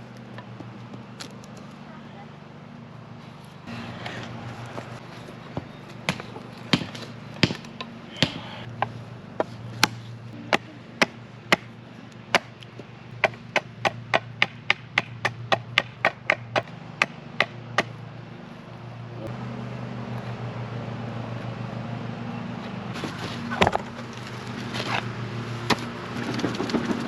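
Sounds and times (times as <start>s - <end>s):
tool striking wood: 5.6s - 11.7s, 12.3s - 17.9s.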